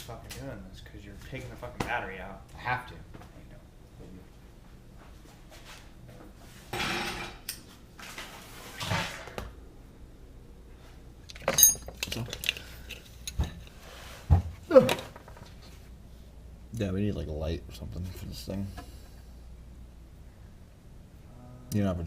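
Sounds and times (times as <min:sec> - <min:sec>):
metal tools clinking: 0:11.3 - 0:13.7.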